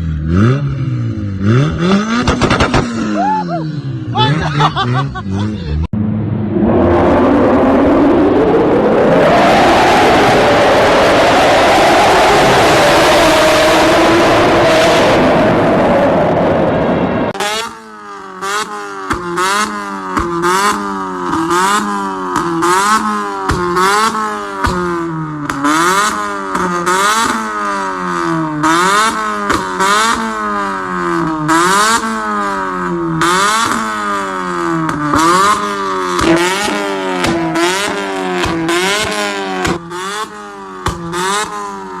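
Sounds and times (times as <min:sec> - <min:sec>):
car engine revving: 0:00.0 - 0:42.0
exhaust pops and crackles: 0:02.2 - 0:03.0, 0:23.4 - 0:27.4, 0:34.7 - 0:40.0, 0:40.8 - 0:41.6
loud rushing noise: 0:05.9 - 0:17.4.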